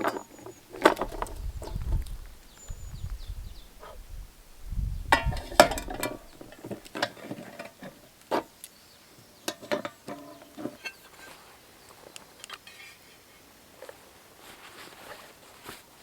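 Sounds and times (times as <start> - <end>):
small hard objects clattering: 0.0 - 2.7, 5.0 - 8.5.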